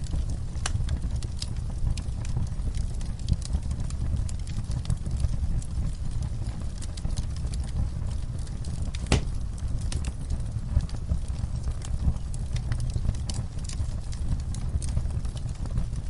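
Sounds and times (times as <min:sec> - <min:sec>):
fire crackling and popping: 0:00.0 - 0:16.0
low rumble of flames: 0:00.0 - 0:16.0.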